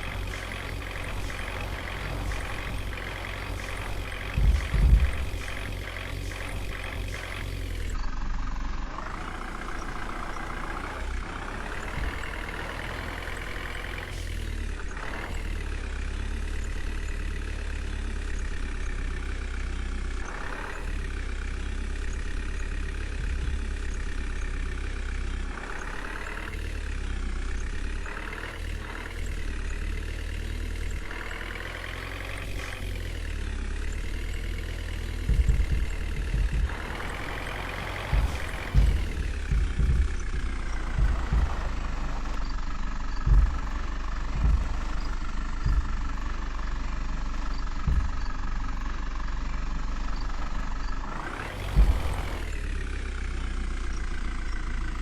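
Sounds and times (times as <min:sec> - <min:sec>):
heavy low thuds: 0:00.0 - 0:08.0, 0:11.8 - 0:12.7, 0:23.2 - 0:24.0, 0:35.0 - 0:49.0, 0:50.2 - 0:52.6
diesel engine under load: 0:00.0 - 0:55.0.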